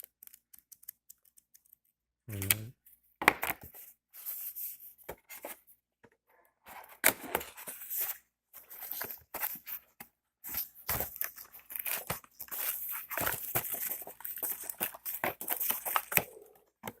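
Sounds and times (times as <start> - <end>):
plastic and cardboard rustling: 6.7 - 17.0.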